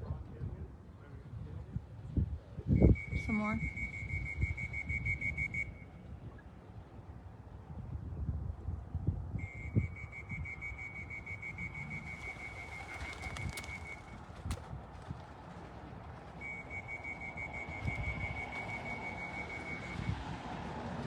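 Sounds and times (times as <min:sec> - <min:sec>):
low wind rumble: 0:00.0 - 0:21.0
pea whistle trills: 0:09.4 - 0:12.7, 0:16.4 - 0:20.1.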